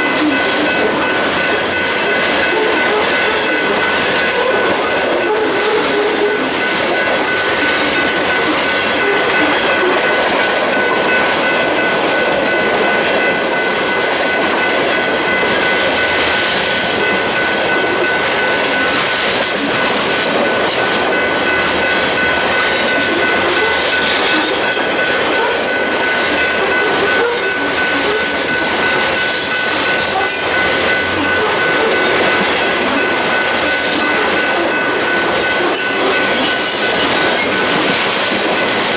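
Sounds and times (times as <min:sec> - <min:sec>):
train wheels rumbling on rail: 0:00.0 - 0:38.9
high-pitched wheel squeal: 0:35.5 - 0:37.1.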